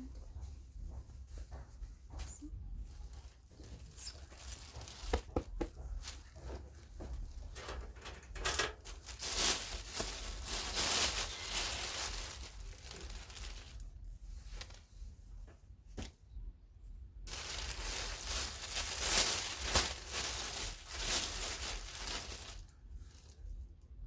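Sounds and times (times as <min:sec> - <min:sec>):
plastic packaging crinkling: 0:03.0 - 0:14.8, 0:17.3 - 0:23.4.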